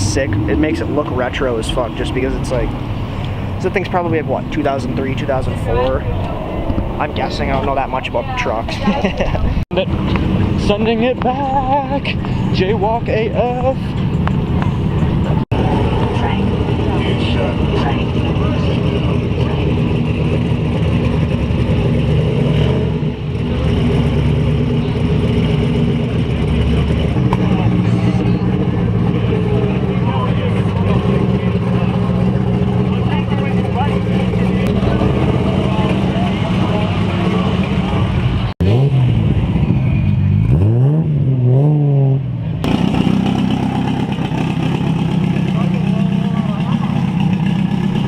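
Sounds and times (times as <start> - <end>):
car engine running: 0.0 - 41.0, 42.4 - 48.0.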